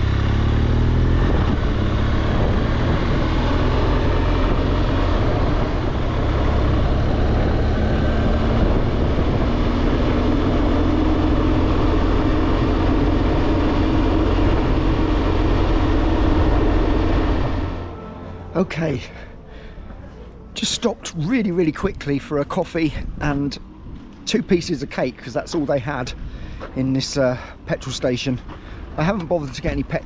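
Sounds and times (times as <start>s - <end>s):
motorcycle engine hum: 0.0s - 30.0s
wind rush: 1.0s - 17.8s.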